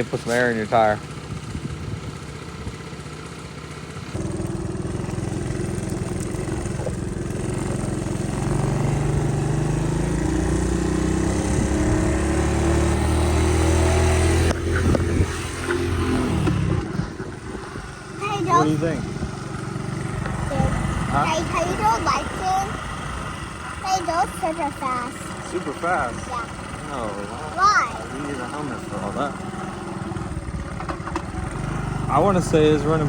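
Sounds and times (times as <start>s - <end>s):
small motorcycle engine accelerating: 0.0s - 33.0s.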